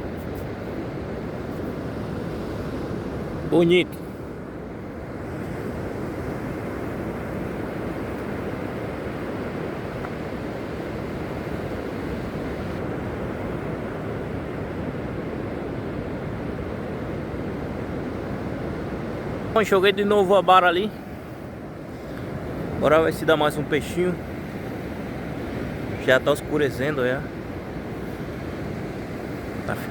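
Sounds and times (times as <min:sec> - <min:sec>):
sea surf rushing: 0:00.0 - 0:29.9.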